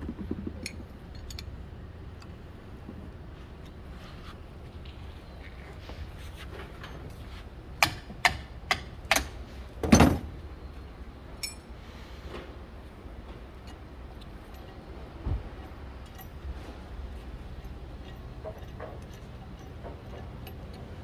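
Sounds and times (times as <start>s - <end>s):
sharp knocks: 0.0s - 1.0s
steady low hum: 0.0s - 21.0s.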